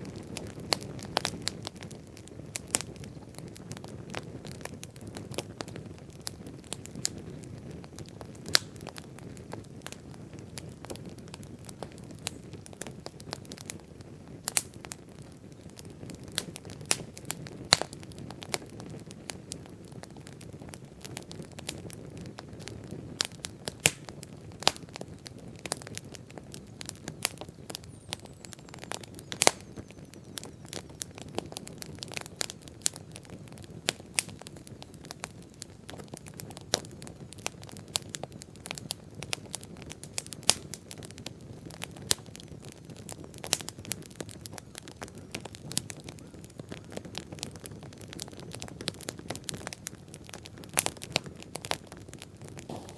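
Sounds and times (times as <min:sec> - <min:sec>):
bonfire crackling and popping: 0:00.0 - 0:52.9
low rush of flame: 0:52.5 - 0:52.9.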